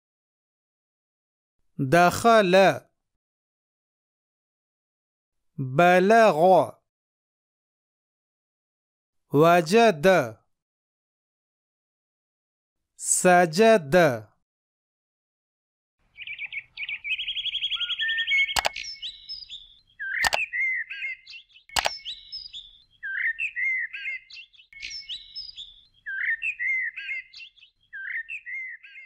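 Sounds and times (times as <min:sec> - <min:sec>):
birds chirping: 0:16.0 - 0:29.0
sharp clicks: 0:18.5 - 0:18.9, 0:20.2 - 0:20.4, 0:21.7 - 0:22.0.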